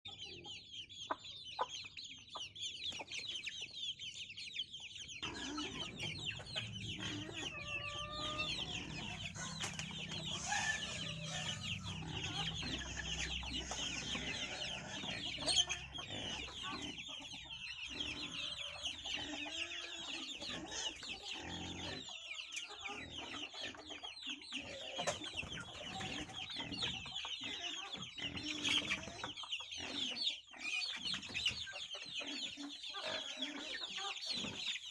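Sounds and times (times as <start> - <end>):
chickens cheeping: 0.1 - 34.9.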